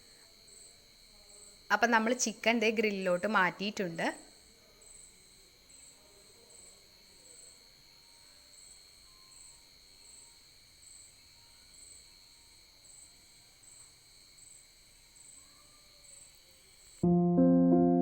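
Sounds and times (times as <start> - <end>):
insect chirping: 0.0 - 17.0
insect trilling: 4.2 - 17.0.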